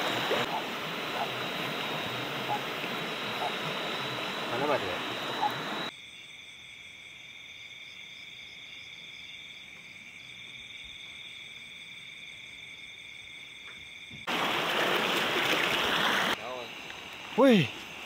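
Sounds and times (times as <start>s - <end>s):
rush of water: 0.0s - 5.9s, 14.3s - 16.4s
night insects trilling: 0.0s - 18.0s.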